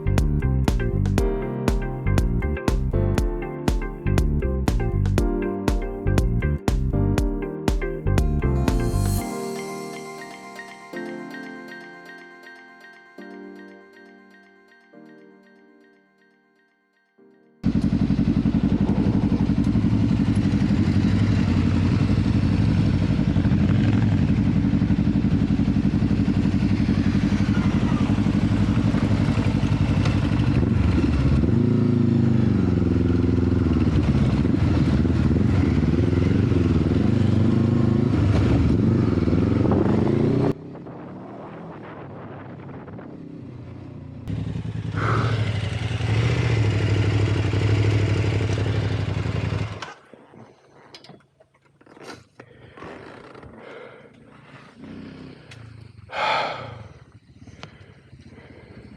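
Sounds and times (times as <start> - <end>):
motorcycle engine running: 17.6 - 41.1, 42.2 - 49.9.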